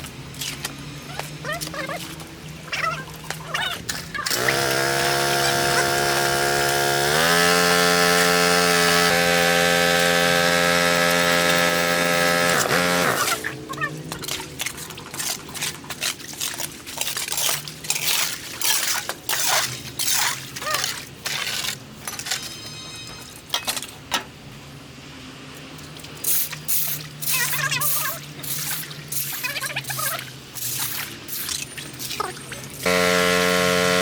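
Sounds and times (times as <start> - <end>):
water splashing and pouring: 13.1 - 21.8, 26.1 - 32.9
steady low hum: 32.8 - 34.0.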